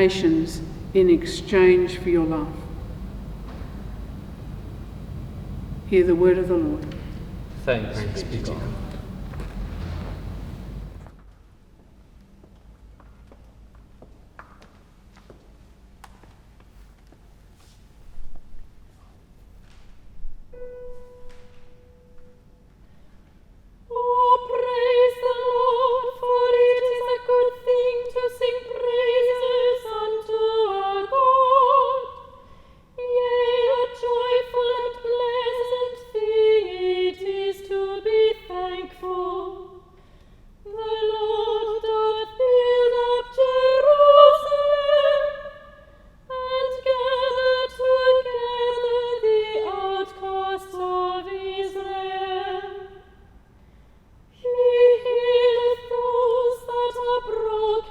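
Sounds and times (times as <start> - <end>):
soprano voice singing unaccompanied: 23.9 - 32.3, 33.0 - 39.8, 40.6 - 53.1, 54.4 - 57.9.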